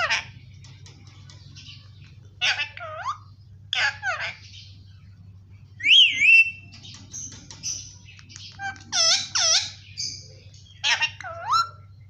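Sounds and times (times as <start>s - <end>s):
parrot chirps and chatter: 0.0s - 12.0s
parrot whistling: 5.8s - 6.7s.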